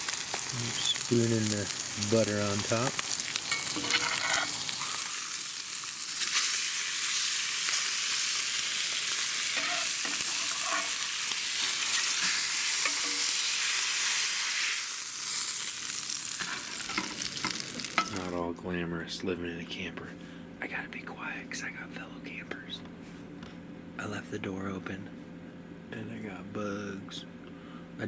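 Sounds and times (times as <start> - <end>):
meat sizzling in a pan: 0.0 - 18.4.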